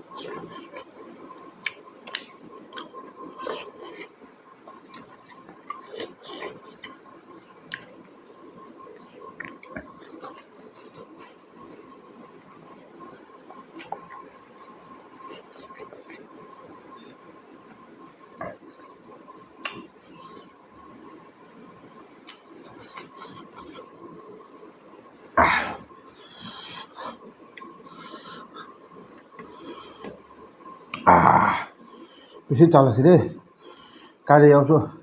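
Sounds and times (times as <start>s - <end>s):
chewing and crunching food: 0.0s - 21.1s, 22.1s - 30.3s.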